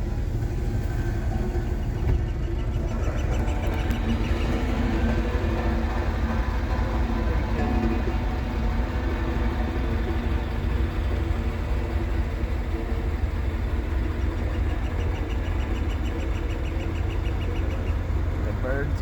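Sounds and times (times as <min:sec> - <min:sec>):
vehicle engine idling: 0:00.0 - 0:19.0
bird chirping: 0:14.0 - 0:18.0.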